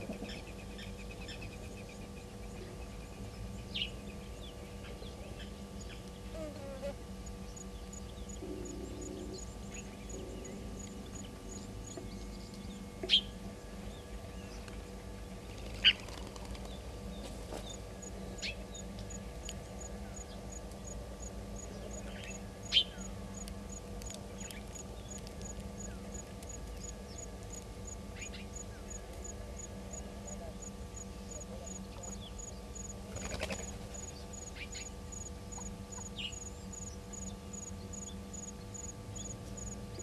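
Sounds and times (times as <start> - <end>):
steady low hum: 0.0 - 40.0
wild birds calling: 7.3 - 21.0, 21.6 - 23.5.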